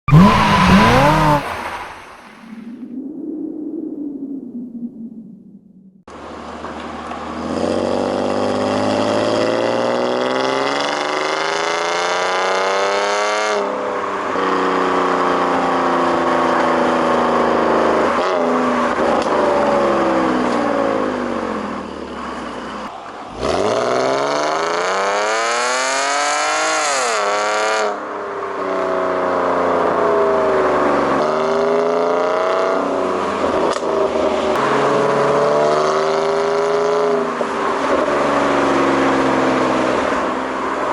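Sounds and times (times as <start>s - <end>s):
car exhaust accelerating: 0.0s - 2.6s.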